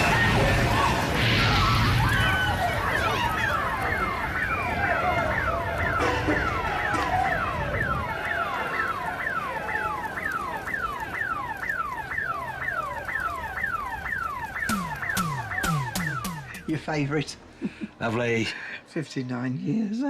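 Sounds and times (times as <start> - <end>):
electronic alarm falling sweeps: 11.7 - 16.8.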